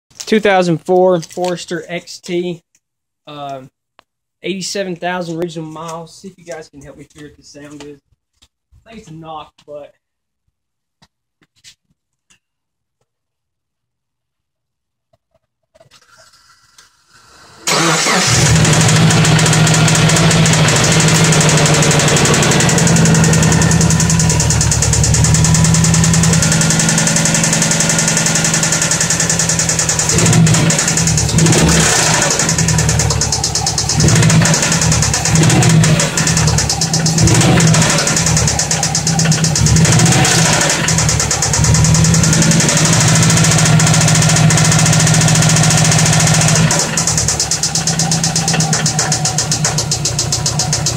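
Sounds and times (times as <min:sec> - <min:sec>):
car engine starting and running: 0:17.2 - 0:50.9.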